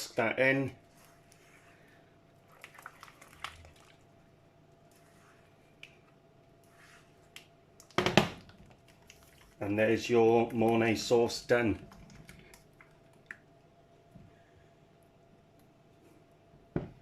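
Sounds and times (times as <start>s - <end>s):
whisk squelching in sauce: 0.8s - 4.1s, 8.8s - 13.3s.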